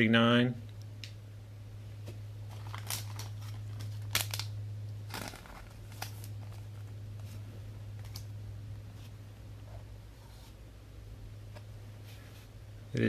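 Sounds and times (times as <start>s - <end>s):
steady low hum: 0.0s - 13.0s
cards rustling and shuffling: 2.5s - 4.5s, 5.1s - 8.3s.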